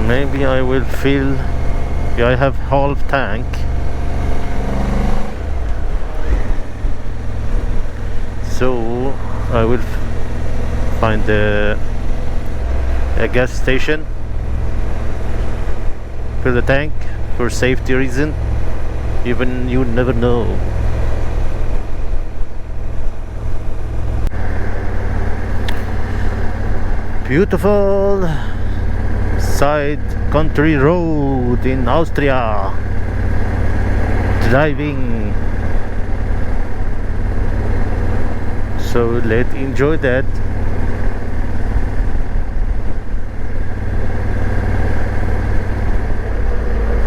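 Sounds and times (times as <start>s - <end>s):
motorcycle engine running: 0.0s - 47.0s
wind on microphone: 9.0s - 10.9s.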